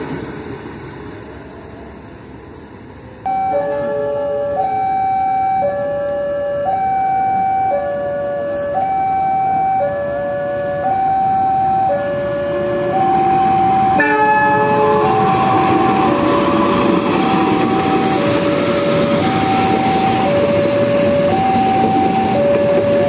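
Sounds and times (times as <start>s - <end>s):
passing train rumble: 0.0s - 23.0s
two-tone warning siren: 3.3s - 23.0s
train horn blast: 14.0s - 15.9s.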